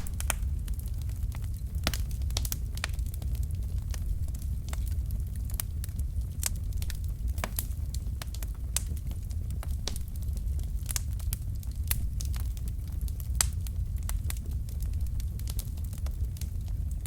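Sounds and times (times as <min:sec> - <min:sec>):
logs burning in fireplace: 0:00.0 - 0:17.0.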